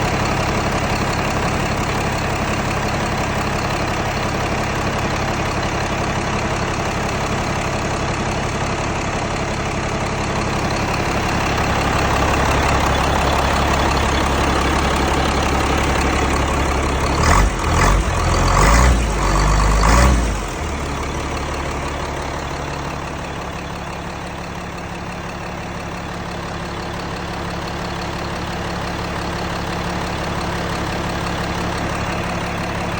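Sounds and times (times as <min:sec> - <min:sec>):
diesel engine running: 0:00.0 - 0:32.9
engine revving: 0:11.0 - 0:22.7.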